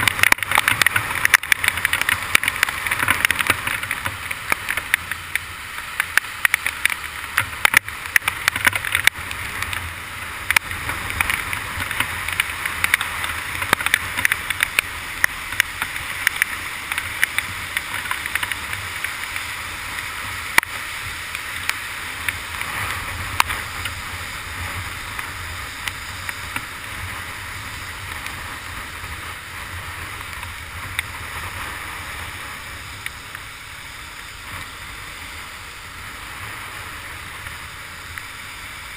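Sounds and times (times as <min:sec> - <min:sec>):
heavy rain: 0:00.0 - 0:38.9
motorcycle engine hum: 0:00.0 - 0:38.9
raindrops ticking on camera case: 0:00.0 - 0:38.9.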